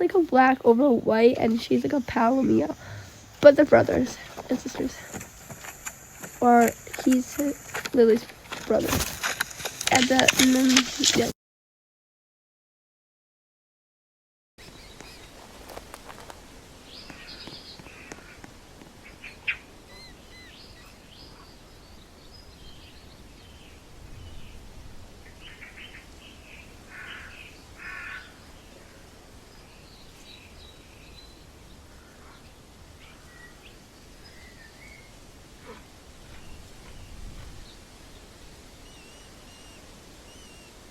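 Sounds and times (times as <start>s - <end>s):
birds chirping: 0.0s - 11.3s, 14.6s - 40.9s
caw-like bird calls: 26.9s - 29.0s, 31.9s - 32.5s.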